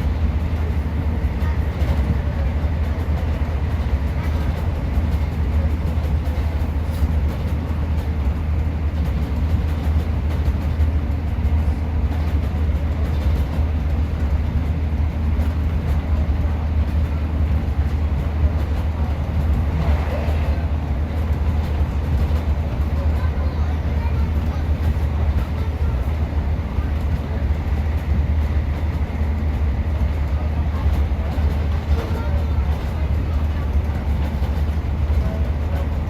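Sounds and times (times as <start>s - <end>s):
train diesel engine rumble: 0.0s - 36.0s
train wheels on track: 0.0s - 36.0s.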